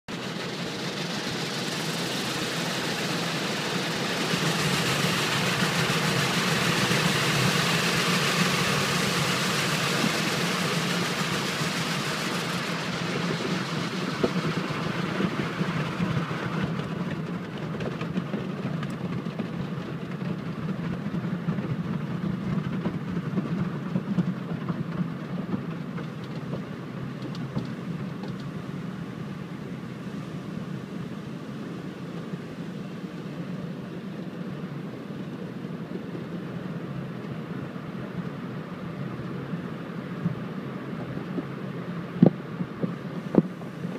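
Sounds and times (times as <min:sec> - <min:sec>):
car wash machinery hum: 0:00.0 - 0:43.9
bright hiss: 0:00.1 - 0:16.4.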